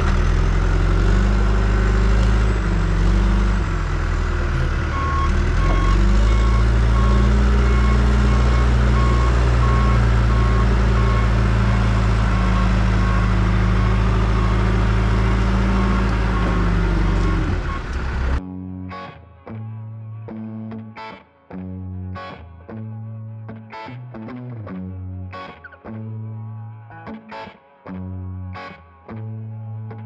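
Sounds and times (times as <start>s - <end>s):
backhoe engine running: 0.0s - 18.4s
reversing alarm beeps: 4.5s - 18.4s.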